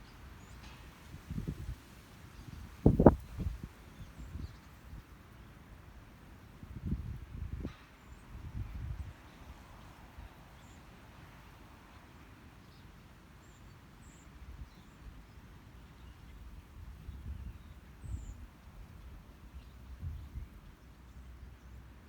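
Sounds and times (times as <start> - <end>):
steady outdoor hiss: 0.0 - 22.0.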